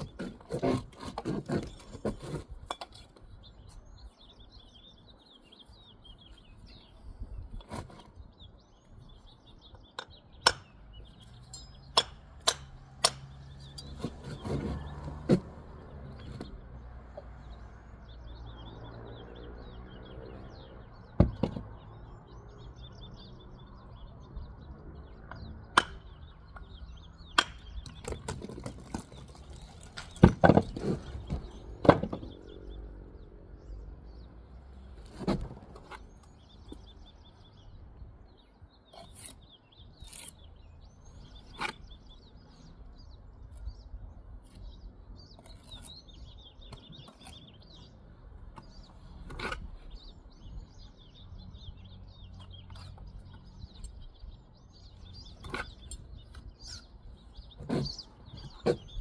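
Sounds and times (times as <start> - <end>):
mortar being scraped: 0.0 - 3.0, 13.8 - 15.5
birds chirping: 0.0 - 59.0.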